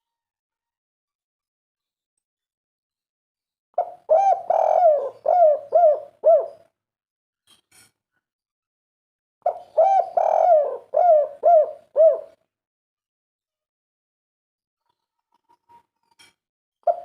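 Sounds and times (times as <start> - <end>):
dove cooing: 3.8 - 6.6, 9.4 - 12.4.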